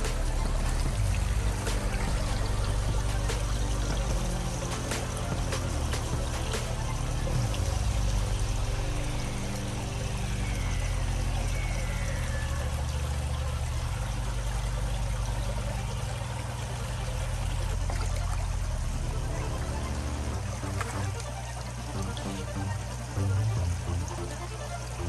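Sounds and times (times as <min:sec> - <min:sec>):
background music with low notes: 0:00.0 - 0:25.0
water pouring and splashing: 0:00.0 - 0:25.0.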